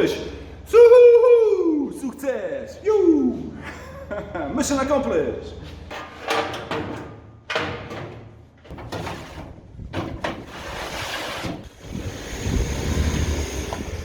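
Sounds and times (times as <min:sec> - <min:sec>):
scraping handling noises: 0:05.6 - 0:11.8.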